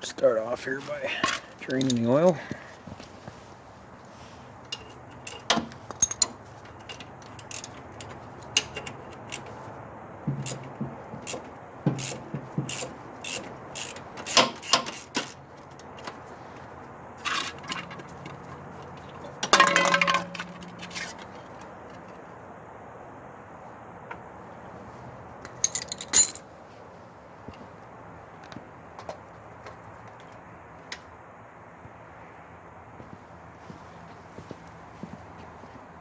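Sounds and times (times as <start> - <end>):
hand tools clinking on metal: 1.1 - 2.4, 4.6 - 9.7, 10.3 - 16.2, 17.2 - 22.1, 25.4 - 26.5.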